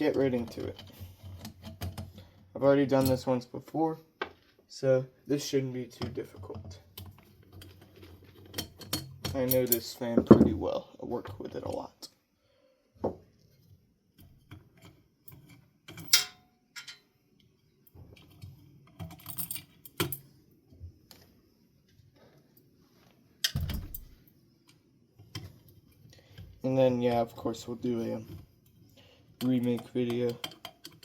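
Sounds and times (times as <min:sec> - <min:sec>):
metal parts clinking: 0:15.3 - 0:17.1, 0:19.0 - 0:20.2.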